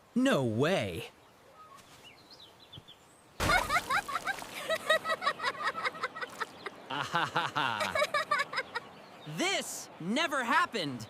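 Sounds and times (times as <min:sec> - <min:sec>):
cartoon wet splat: 0:03.4 - 0:04.4.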